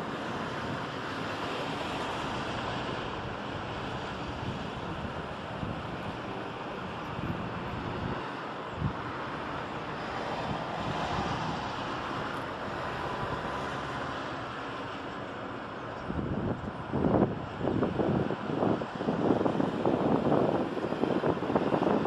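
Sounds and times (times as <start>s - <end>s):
distant road traffic: 0.0s - 22.0s
wind: 0.0s - 22.0s.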